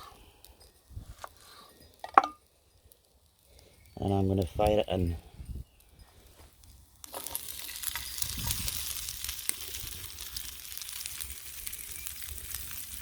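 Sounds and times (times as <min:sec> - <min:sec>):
onion sizzling in a hot pan: 0:06.8 - 0:13.0.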